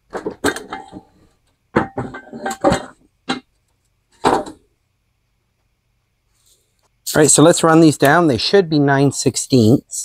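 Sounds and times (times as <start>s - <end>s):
metal clanking and clinking: 0.1s - 1.2s, 1.8s - 3.5s.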